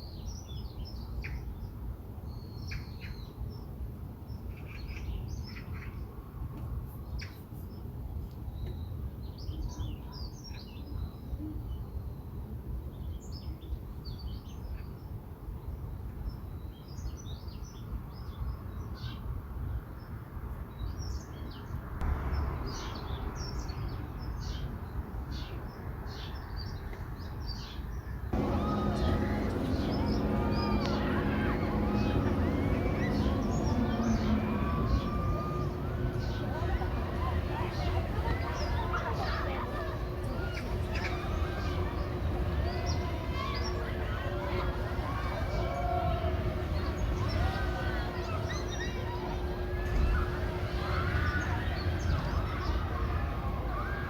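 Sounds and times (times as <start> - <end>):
small birds chirping: 28.4 - 43.9
low background rumble: 28.4 - 54.0.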